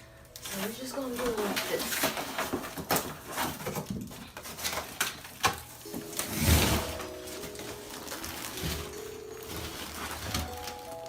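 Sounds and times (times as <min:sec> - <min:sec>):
soft background music: 0:00.0 - 0:03.8, 0:04.4 - 0:11.0
mattress scraping out of box: 0:06.2 - 0:10.5.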